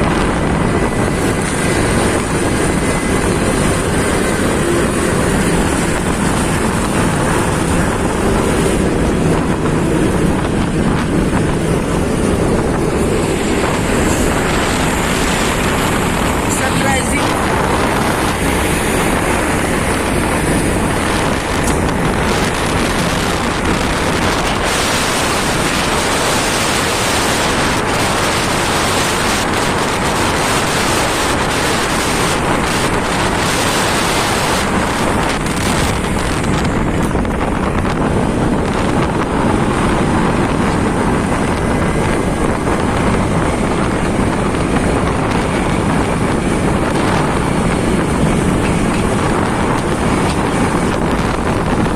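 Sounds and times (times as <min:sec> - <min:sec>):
road and engine noise: 0:00.0 - 0:51.9
wind rushing over microphone: 0:00.0 - 0:51.9.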